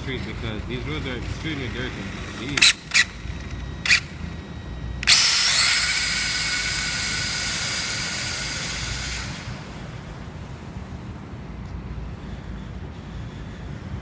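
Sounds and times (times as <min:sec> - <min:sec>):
electric motor and gear whine: 0:00.0 - 0:10.7.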